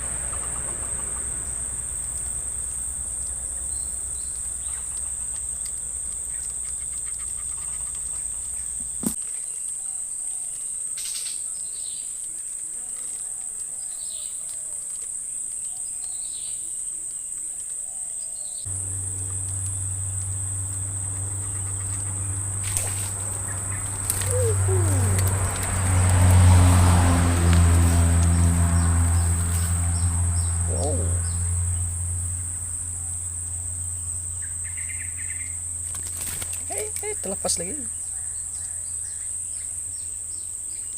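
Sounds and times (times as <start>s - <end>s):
low motor hum: 0.0s - 9.2s, 18.7s - 40.4s
insects droning: 0.0s - 40.9s
bird chirps: 18.5s - 25.6s, 28.2s - 32.2s, 33.0s - 40.9s.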